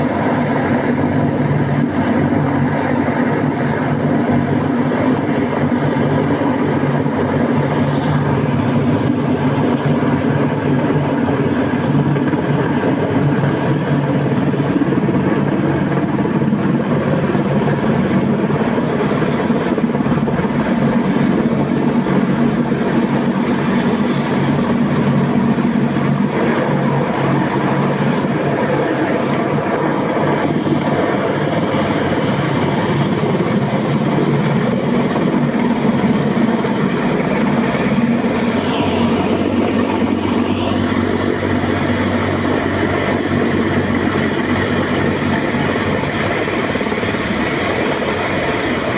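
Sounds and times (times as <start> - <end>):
helicopter engine and rotor drone: 0.0 - 48.9
thin high whine: 10.6 - 48.9.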